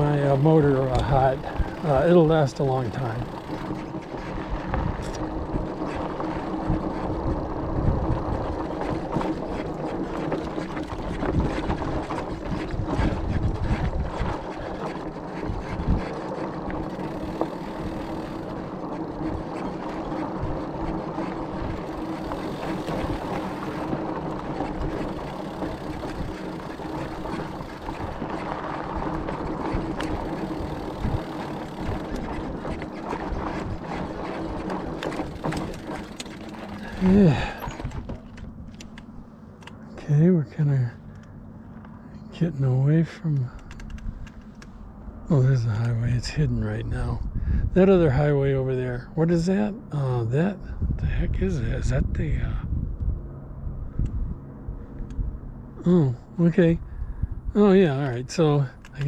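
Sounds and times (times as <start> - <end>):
electric motor humming: 0.0 - 39.0
tyres on rough dirt road: 0.0 - 59.0.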